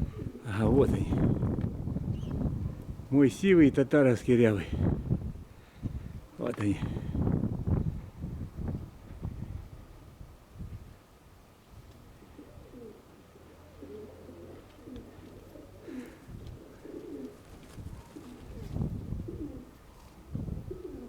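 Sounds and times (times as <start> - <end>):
pigeons cooing: 0.0 - 2.8, 12.0 - 21.0
wind on microphone: 0.0 - 3.7, 4.6 - 11.0, 16.2 - 21.0.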